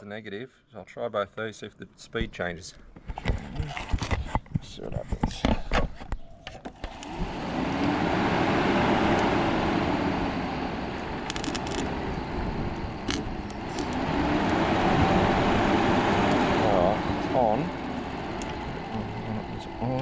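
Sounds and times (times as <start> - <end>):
cooling fan rushing air: 6.7 - 20.0.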